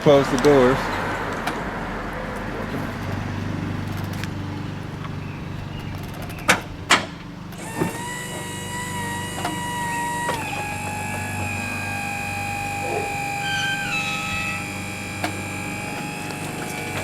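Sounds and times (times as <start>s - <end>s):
electric motor hum: 2.9s - 17.0s
door clunks: 5.8s - 17.0s
steady pitched tone: 12.2s - 16.0s.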